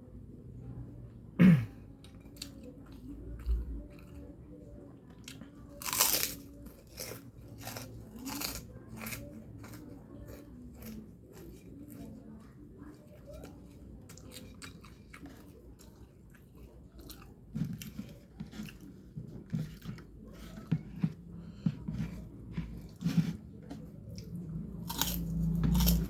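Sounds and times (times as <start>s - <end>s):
person chewing food: 5.2s - 26.0s.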